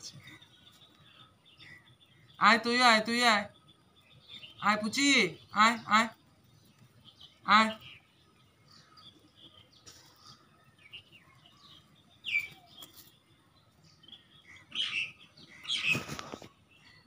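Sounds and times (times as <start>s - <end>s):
high bird chirps: 0.0s - 17.0s
brief rustle: 15.7s - 16.6s.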